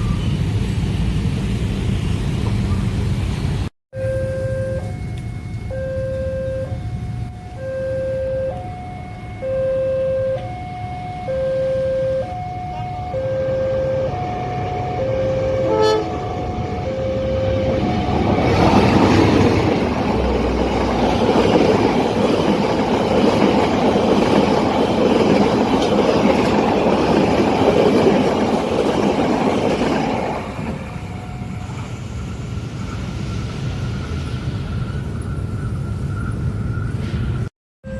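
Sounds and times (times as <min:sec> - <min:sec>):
train wheel and rail noise: 0:00.0 - 0:09.5, 0:10.2 - 0:37.5
two-tone crossing alarm: 0:03.9 - 0:24.6
train horn toot: 0:04.0 - 0:19.2.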